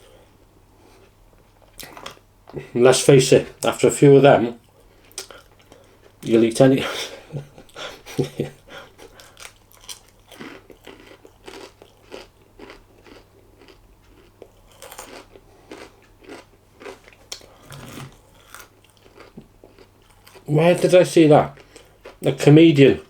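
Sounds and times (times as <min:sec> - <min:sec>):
person chewing food: 0:04.6 - 0:06.2, 0:07.4 - 0:20.5, 0:21.5 - 0:22.3.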